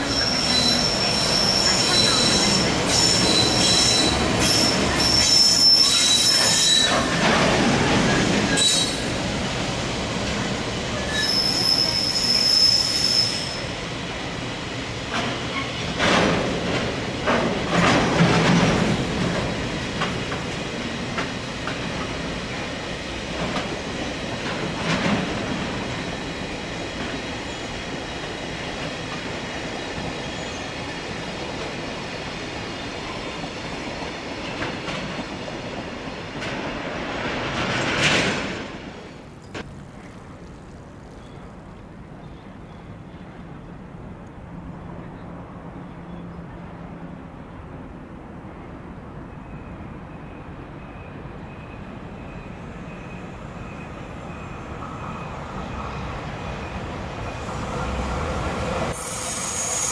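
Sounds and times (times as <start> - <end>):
high-pitched wheel squeal: 0.0 - 7.0, 8.5 - 9.0, 11.0 - 13.6, 59.0 - 59.9.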